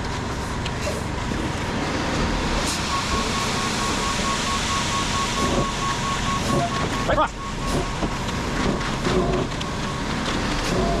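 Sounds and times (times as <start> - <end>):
heavy equipment engine running: 0.0 - 11.0
rapid high beeping: 2.9 - 8.6.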